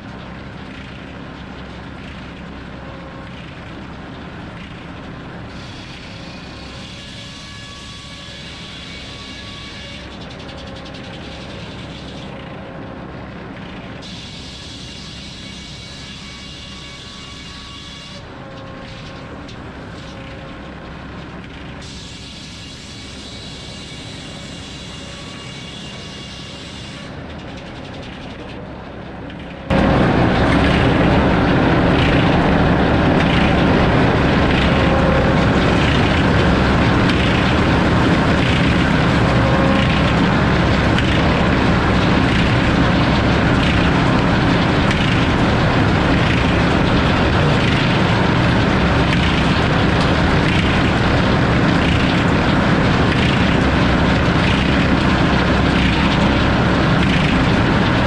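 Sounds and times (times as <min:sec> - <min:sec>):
saw cutting log: 0:05.5 - 0:12.3, 0:21.8 - 0:27.2.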